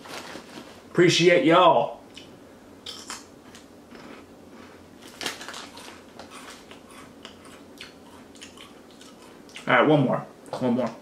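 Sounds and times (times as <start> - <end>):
dry crunchy chewing: 2.1 - 9.7.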